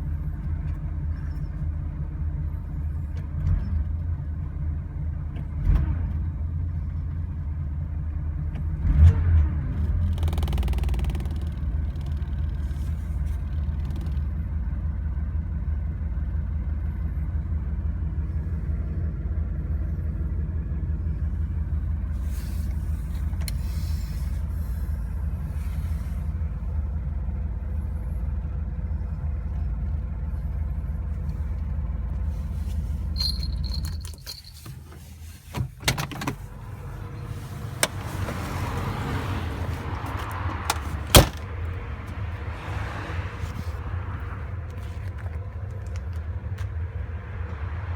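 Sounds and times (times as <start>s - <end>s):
car engine idling: 0.0s - 8.9s, 9.6s - 47.9s
engine revving: 8.8s - 12.4s, 36.4s - 45.0s.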